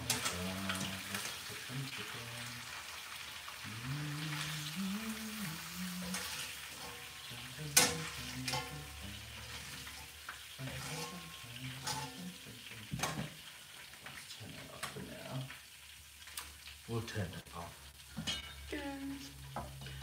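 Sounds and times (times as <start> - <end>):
utensil scraping and clacking pan: 0.0 - 1.4, 5.9 - 13.4
chicken sizzling in pan: 0.0 - 20.0.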